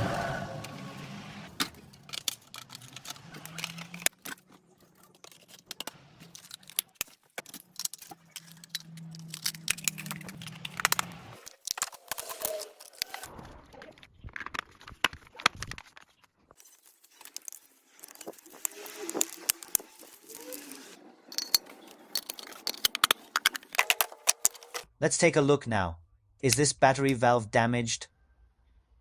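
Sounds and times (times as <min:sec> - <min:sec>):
small tools clinking: 0:01.6 - 0:13.2, 0:16.6 - 0:24.9.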